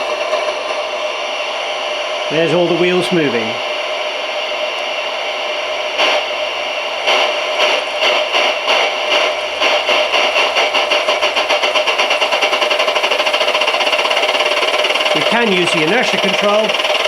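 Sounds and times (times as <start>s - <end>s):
simulated steam exhaust chuffs: 0.0s - 17.0s
steady steam hiss: 0.0s - 17.0s.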